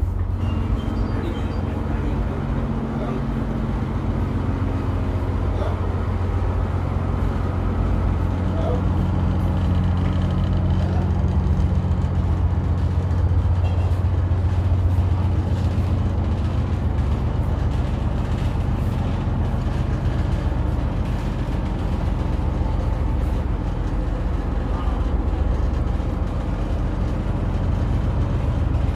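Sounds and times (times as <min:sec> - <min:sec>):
boat engine droning: 0:00.0 - 0:28.9.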